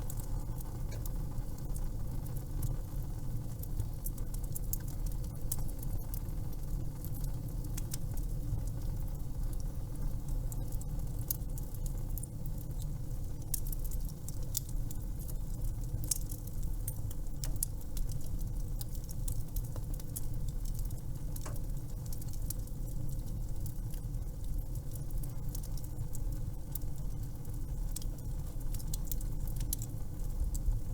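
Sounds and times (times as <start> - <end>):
low steady rumble: 0.0 - 3.4
wood fire crackling and popping: 0.0 - 30.9.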